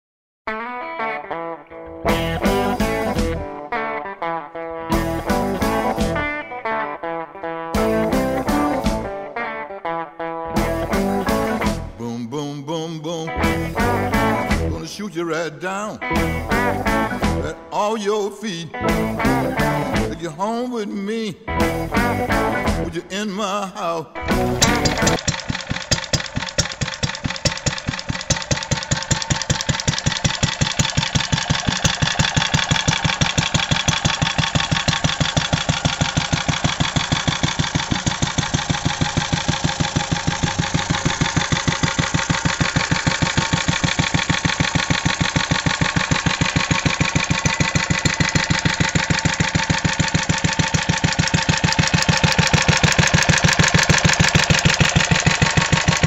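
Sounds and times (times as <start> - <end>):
stationary engine running: 2.1 - 3.4, 4.8 - 6.3, 13.4 - 14.8, 16.1 - 17.7, 24.2 - 56.0.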